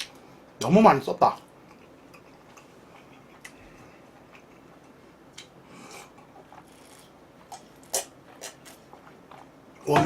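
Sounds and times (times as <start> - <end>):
food being chewed: 1.6 - 9.6.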